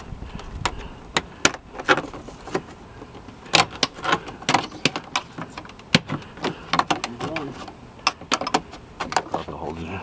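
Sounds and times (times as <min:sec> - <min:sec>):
plastic trim prying clicks and knocks: 0:03.5 - 0:09.4.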